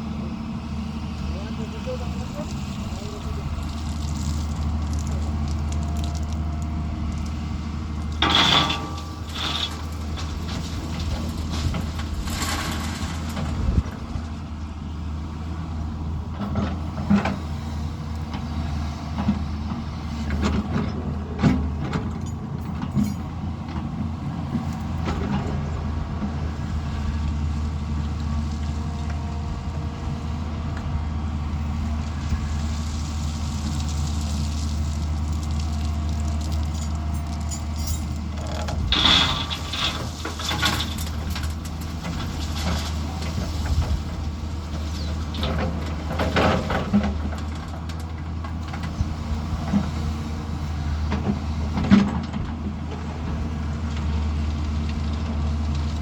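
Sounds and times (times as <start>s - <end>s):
diesel machinery engine drone: 0.0s - 56.0s
knocks and clanks: 8.1s - 13.5s, 36.8s - 44.0s.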